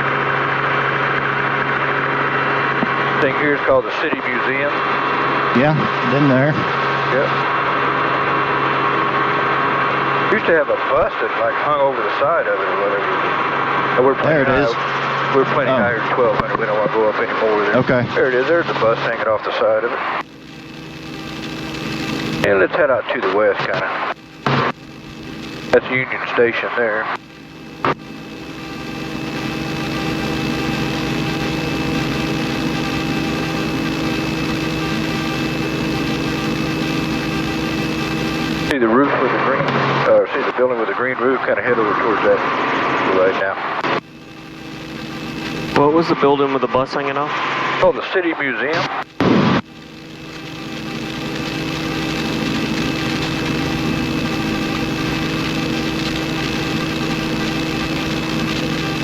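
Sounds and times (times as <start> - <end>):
helicopter engine whine: 0.0 - 10.7, 13.0 - 18.4, 49.1 - 59.0
constant whining tones: 0.0 - 59.0
helicopter rotor beat: 13.4 - 18.4.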